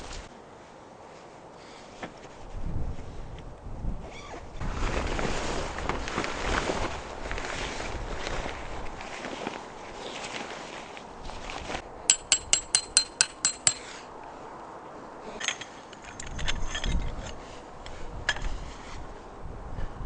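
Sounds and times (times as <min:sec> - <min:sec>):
sharp ringing metal taps: 0:12.1 - 0:13.9.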